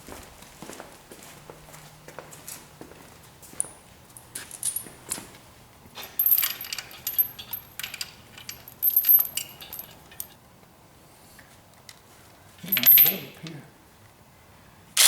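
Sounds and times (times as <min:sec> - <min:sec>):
bolts and washers jingling: 0:06.0 - 0:10.3.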